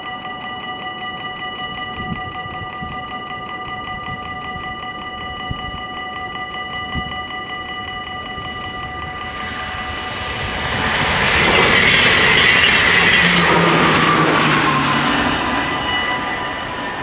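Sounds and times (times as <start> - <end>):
level crossing warning bells: 0.0 - 17.0
electric train rushing past: 5.9 - 17.0.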